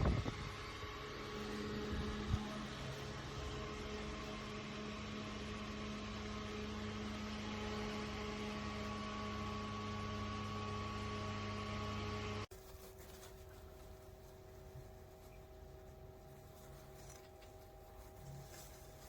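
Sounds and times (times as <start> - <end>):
desk fan whirring: 0.0 - 19.0.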